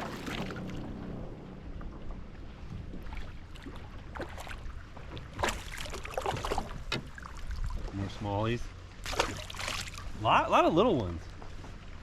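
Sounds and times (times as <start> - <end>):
water splashes: 0.0 - 12.0
wind rumble on microphone: 6.3 - 8.3.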